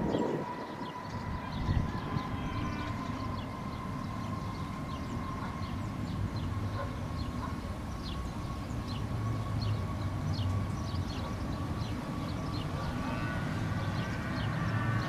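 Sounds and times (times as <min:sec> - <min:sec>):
wind on microphone: 0:00.0 - 0:06.8
jet engines rumbling and whining: 0:00.0 - 0:15.0.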